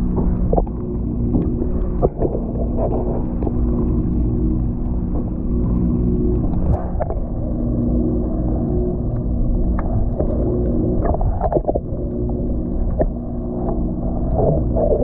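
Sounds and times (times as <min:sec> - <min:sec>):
low motor hum: 0:00.0 - 0:15.0
low rumble: 0:00.0 - 0:15.0.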